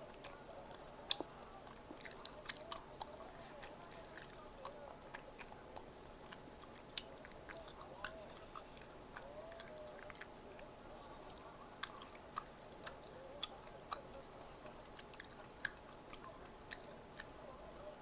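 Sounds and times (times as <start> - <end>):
crunchy chewing and biting: 0.0 - 17.4.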